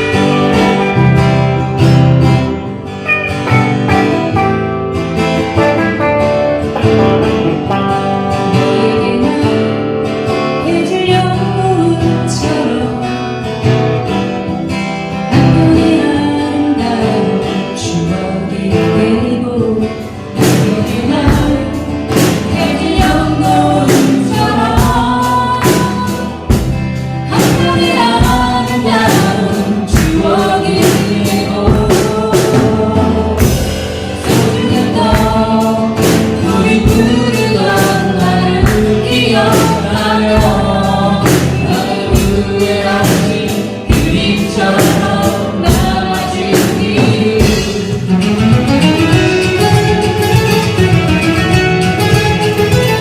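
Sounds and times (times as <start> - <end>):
acoustic guitar strumming: 0.0 - 53.0
people singing together: 6.8 - 13.5, 15.3 - 49.8.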